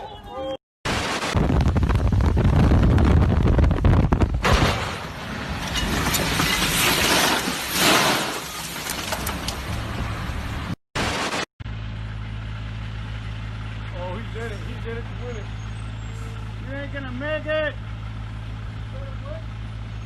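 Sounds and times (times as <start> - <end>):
vehicle rumble: 8.4 - 10.8, 11.6 - 20.0.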